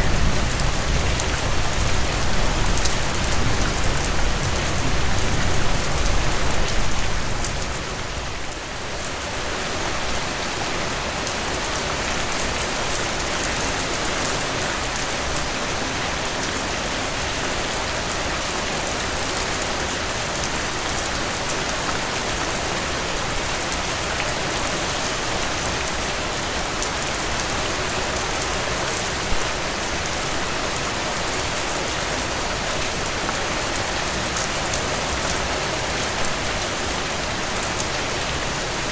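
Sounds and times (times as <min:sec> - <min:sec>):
steady rainfall: 0:00.0 - 0:38.9.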